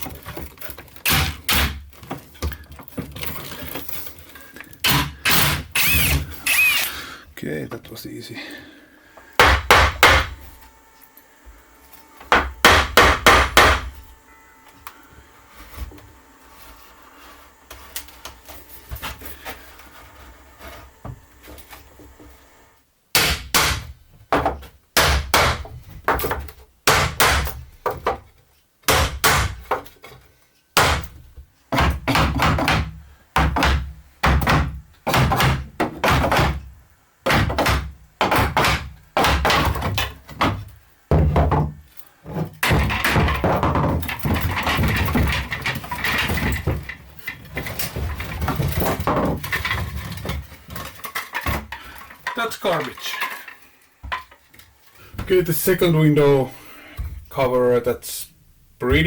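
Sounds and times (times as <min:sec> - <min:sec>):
heavy knocks on wood: 0:09.4 - 0:10.4, 0:12.3 - 0:14.0, 0:30.8 - 0:36.6, 0:37.2 - 0:41.8.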